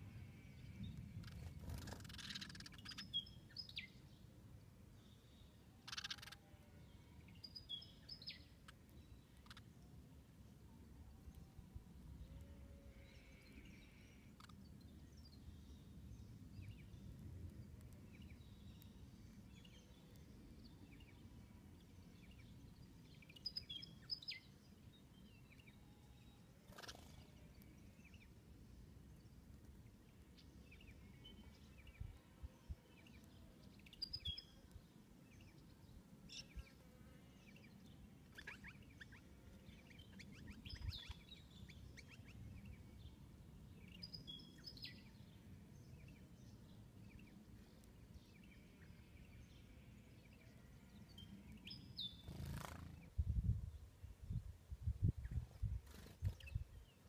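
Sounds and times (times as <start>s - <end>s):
small birds chirping: 0.0s - 4.3s, 4.9s - 57.0s.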